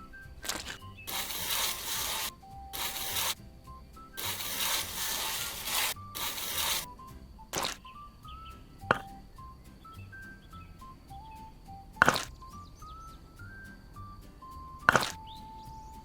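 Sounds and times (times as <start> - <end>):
light background music: 0.0 - 16.0
scraping noise: 0.4 - 3.4, 4.2 - 6.9.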